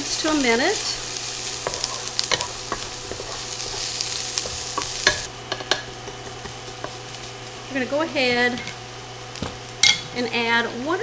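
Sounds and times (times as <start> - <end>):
wooden spatula stirring and scraping: 0.0 - 8.8
onion and garlic sizzling in oil: 0.0 - 11.0.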